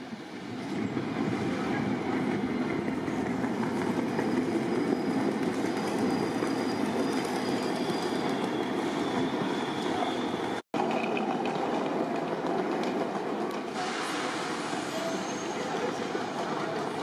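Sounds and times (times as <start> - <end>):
train wheels rumbling on rails: 0.0 - 17.0
high-pitched wheel squeal: 3.8 - 11.1, 14.7 - 16.0.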